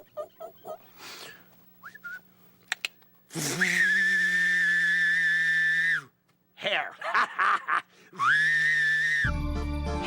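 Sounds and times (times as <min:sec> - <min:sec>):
long steady whistle tone: 0:01.8 - 0:02.3, 0:03.4 - 0:06.2.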